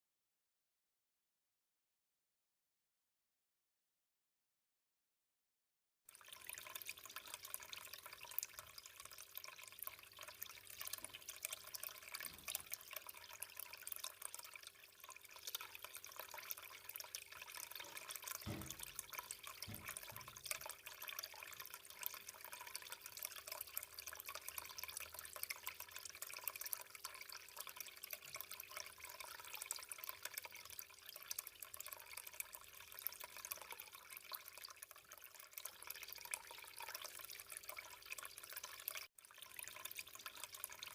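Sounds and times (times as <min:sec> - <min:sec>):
fountain water trickling and splashing: 0:06.1 - 0:40.9
soft low knocks: 0:18.5 - 0:20.4.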